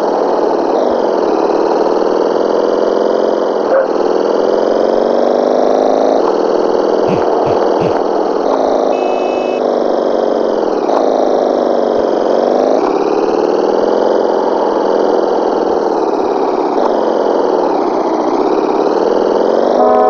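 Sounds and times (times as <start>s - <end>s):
motorcycle engine running: 5.8s - 9.6s.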